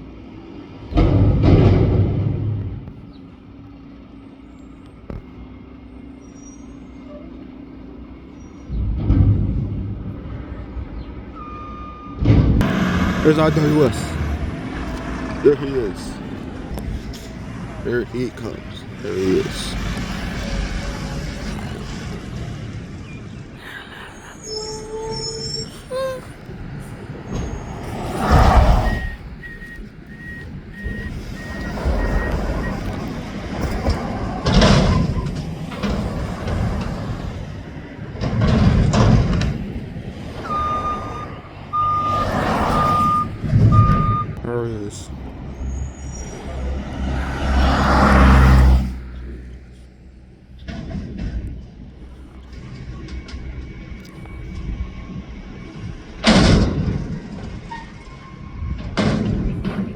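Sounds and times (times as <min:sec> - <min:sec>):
traffic engine hum: 0:00.0 - 0:59.9
garbage truck squeal: 0:06.0 - 0:09.5, 0:10.4 - 0:39.4, 0:40.4 - 0:44.4, 0:45.3 - 0:49.1, 0:54.3 - 0:59.9
reversing alarm beeping: 0:11.4 - 0:14.5, 0:27.3 - 0:33.3, 0:40.4 - 0:44.4
air burst and engine rumble: 0:12.2 - 0:40.6
vehicle passing by: 0:12.3 - 0:57.6.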